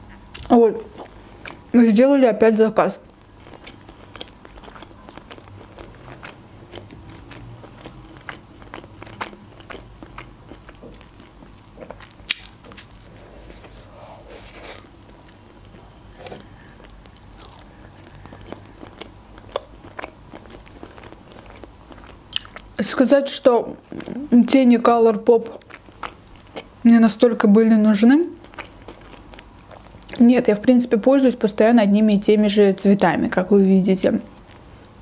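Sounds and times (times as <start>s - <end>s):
person crunching fried food: 3.3s - 13.7s, 16.5s - 22.8s, 28.4s - 30.2s.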